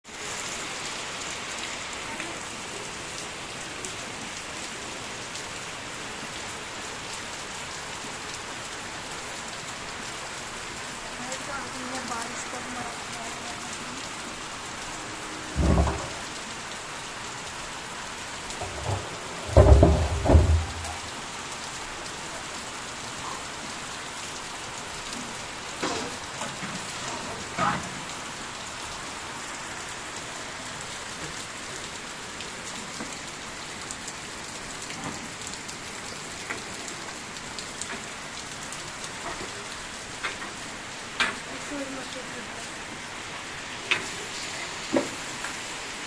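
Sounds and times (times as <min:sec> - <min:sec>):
heavy rain falling: 0:00.0 - 0:46.0
loud low thumps: 0:15.6 - 0:16.2.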